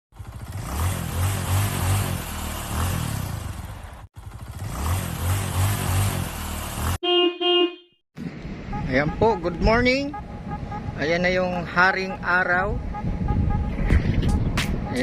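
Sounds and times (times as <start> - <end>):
engine revving: 0.1 - 7.0.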